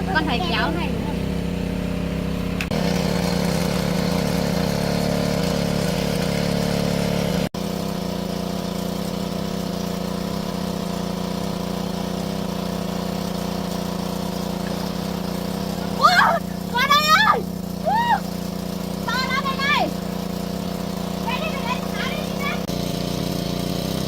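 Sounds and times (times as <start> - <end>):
small engine droning: 0.0 - 24.0.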